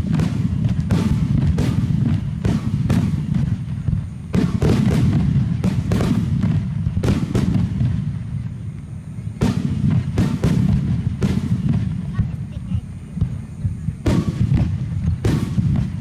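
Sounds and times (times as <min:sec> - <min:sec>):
fireworks bursting with sharp booms: 0:00.0 - 0:16.0.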